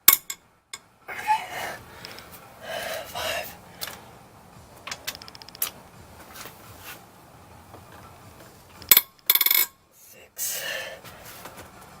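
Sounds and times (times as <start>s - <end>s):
ratchet wrench clicking: 5.0s - 5.8s, 8.8s - 9.7s.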